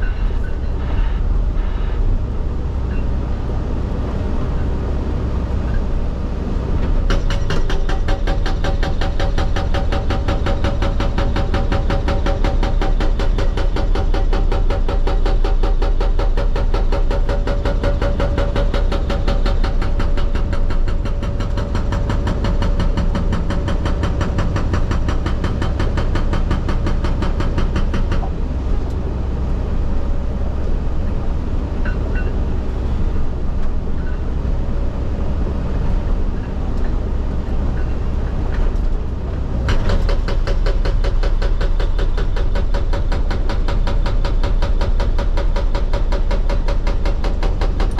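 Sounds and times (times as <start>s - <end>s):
excavator engine running: 0.0s - 47.9s
hydraulic rock breaker hammering: 6.9s - 28.4s, 39.6s - 47.9s.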